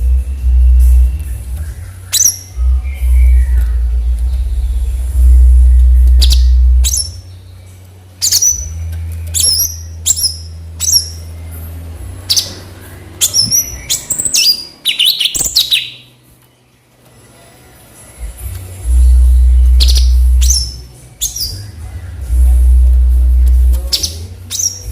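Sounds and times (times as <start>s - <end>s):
low steady hum: 0.0s - 24.9s
bulbul chirping: 0.5s - 7.4s, 8.2s - 11.4s, 12.2s - 16.1s, 19.4s - 21.8s.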